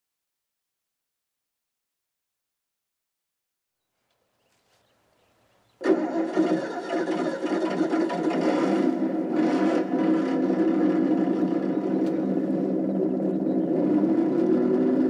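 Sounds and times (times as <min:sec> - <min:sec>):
simulated engine sound from speaker: 0:05.8 - 0:15.0.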